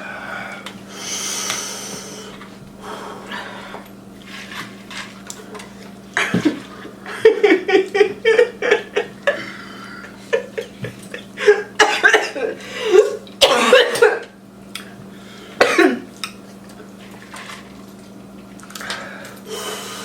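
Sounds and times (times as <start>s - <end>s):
people breathing hard and hissing: 0.0s - 3.9s, 18.7s - 20.0s
short loud coughs: 11.8s - 14.3s, 15.6s - 16.1s.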